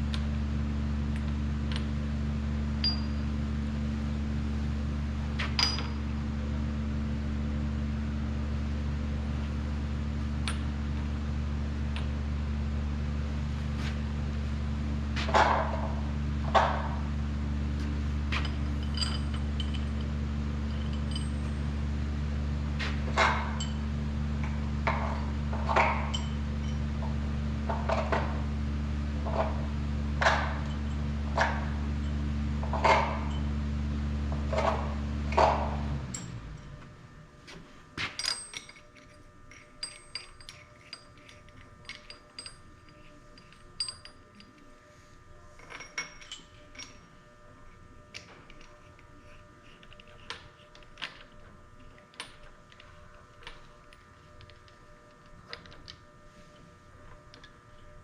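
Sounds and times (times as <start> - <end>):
low machine hum: 0.0 - 58.0
metal tools clinking: 2.8 - 3.2, 5.6 - 6.1, 18.3 - 21.8, 24.4 - 26.9, 38.0 - 44.7, 45.6 - 54.8.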